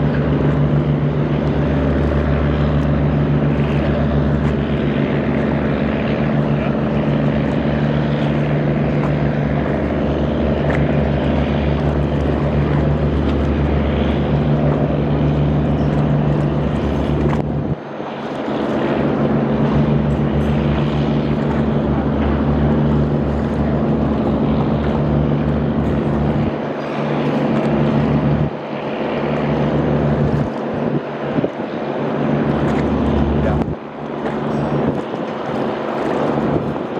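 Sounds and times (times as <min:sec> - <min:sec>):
boat engine humming: 0:00.0 - 0:36.9
water: 0:00.0 - 0:36.9
wind: 0:00.0 - 0:36.9.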